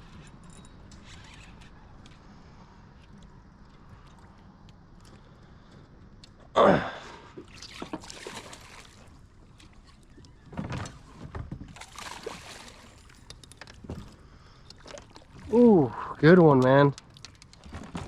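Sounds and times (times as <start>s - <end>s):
water sloshing: 7.2s - 18.0s
fish splashing at surface: 7.5s - 9.1s, 11.8s - 13.0s.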